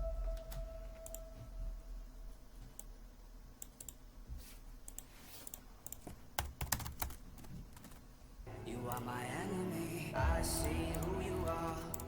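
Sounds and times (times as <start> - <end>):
soft keyboard typing: 3.6 - 4.0, 4.8 - 8.1.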